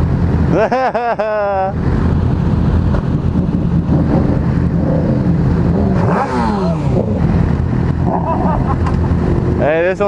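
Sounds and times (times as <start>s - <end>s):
motorcycle engine running: 2.0s - 9.9s
engine revving: 2.9s - 9.7s.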